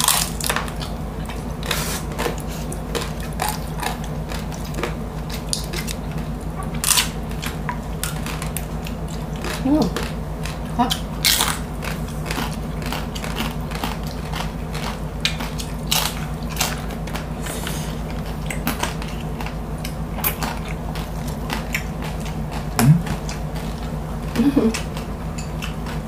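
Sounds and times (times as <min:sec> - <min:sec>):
crisp chewing crunches: 0:00.0 - 0:26.0
steady low hum: 0:00.0 - 0:26.0
wet mouth sounds: 0:22.6 - 0:23.4.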